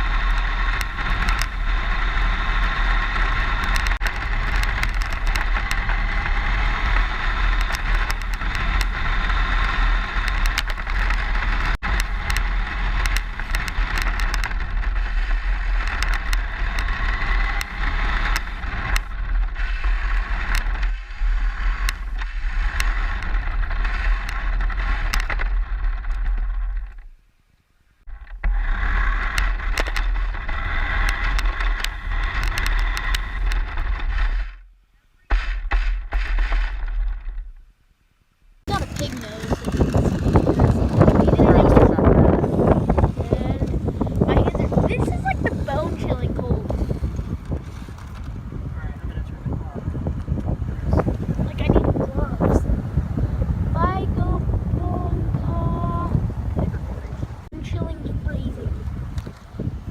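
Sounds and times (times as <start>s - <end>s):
rc car chassis rumbling and rattling: 0.0s - 27.2s, 28.0s - 34.7s, 35.3s - 37.7s, 38.6s - 59.9s
small clicks: 3.2s - 6.0s, 9.6s - 15.0s.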